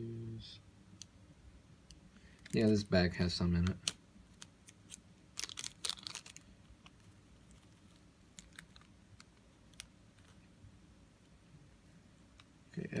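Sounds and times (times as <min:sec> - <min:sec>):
plastic bag crinkling: 0:03.7 - 0:10.4.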